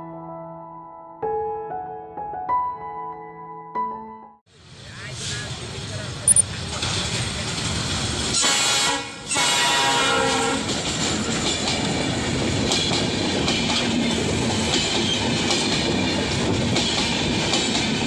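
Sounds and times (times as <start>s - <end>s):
train wheels clattering on rails: 6.6s - 18.0s
train horn blasts: 8.4s - 10.7s.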